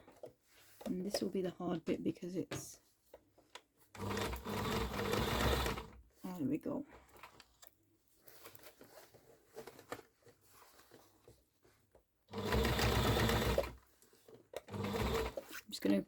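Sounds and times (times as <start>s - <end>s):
electric sewing machine stitching: 4.0s - 6.0s, 12.3s - 13.8s, 14.7s - 15.5s.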